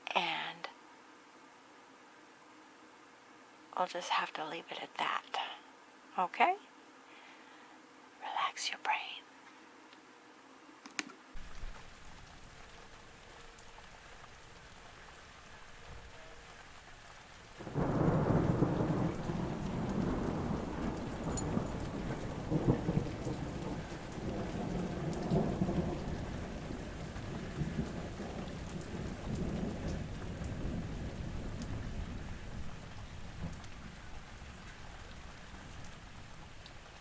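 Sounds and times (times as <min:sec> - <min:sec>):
steady rain: 0:11.3 - 0:37.0
thunder rumbling: 0:11.4 - 0:37.0.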